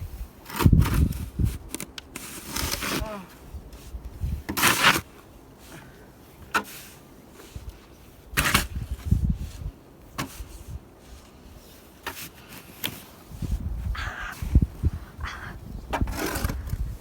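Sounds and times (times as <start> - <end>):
snow shovel scraping and crunching: 0.2 - 13.5, 16.0 - 16.8.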